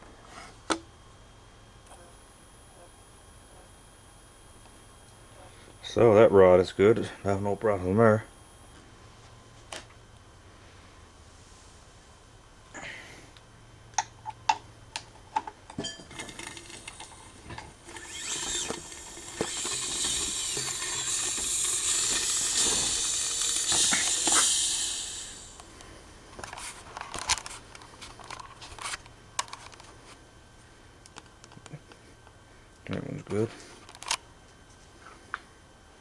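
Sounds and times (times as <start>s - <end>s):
power tool running: 16.1s - 25.7s.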